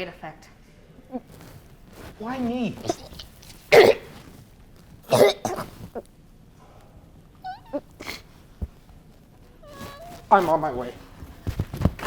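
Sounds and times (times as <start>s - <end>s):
person coughing: 2.8s - 4.3s, 5.1s - 5.9s, 8.0s - 8.2s.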